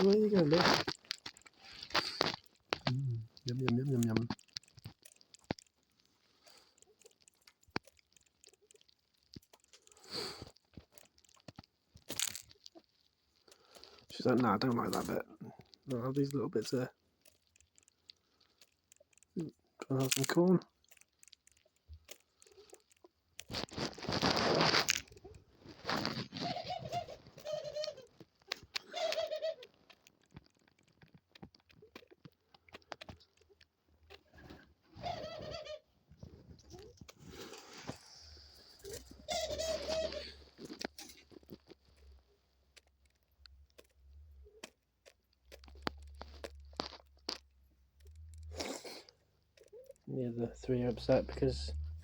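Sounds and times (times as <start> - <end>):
dove pecking seeds: 0.0 - 52.0
dove cooing: 26.4 - 28.1, 28.8 - 29.7, 35.0 - 35.9, 39.1 - 40.4.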